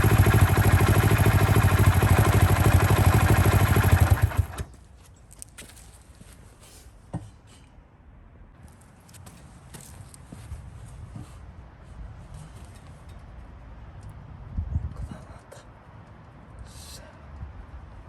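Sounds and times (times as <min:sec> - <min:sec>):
small engine running: 0:00.0 - 0:04.7.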